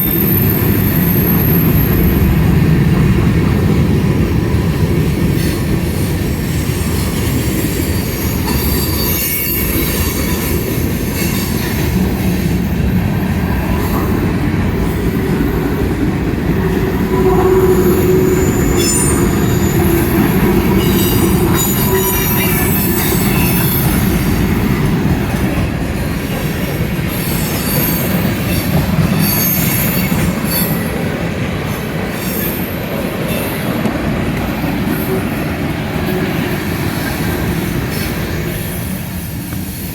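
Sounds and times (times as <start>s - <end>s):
high-pitched wheel squeal: 0.0s - 2.3s, 7.9s - 10.5s, 16.9s - 24.2s, 27.1s - 30.9s
freight train wheels rumbling on rail: 0.0s - 39.9s.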